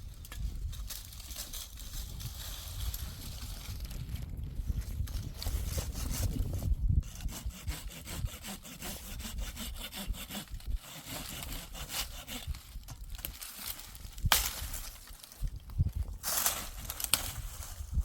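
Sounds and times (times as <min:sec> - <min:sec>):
hand saw rasping through wood: 0:05.5 - 0:12.7.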